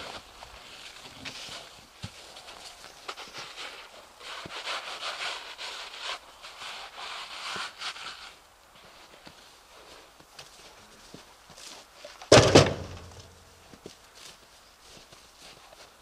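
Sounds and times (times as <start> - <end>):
hand brushing snow: 2.6 - 10.1.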